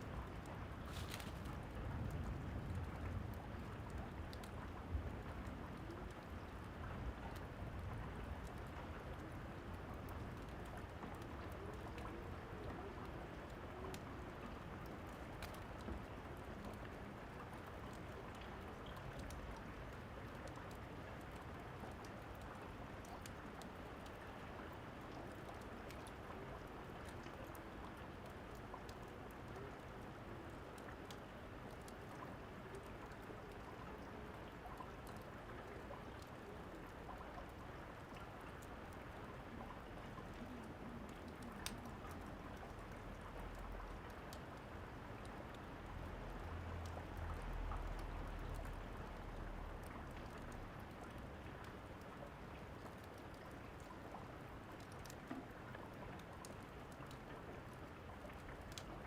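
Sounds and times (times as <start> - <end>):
rain: 0.0 - 59.0
fireplace crackles: 0.2 - 24.2, 25.0 - 44.7.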